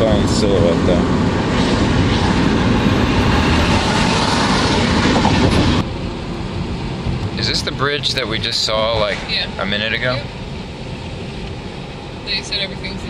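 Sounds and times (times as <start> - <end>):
car road noise rumbling: 0.0 - 13.0.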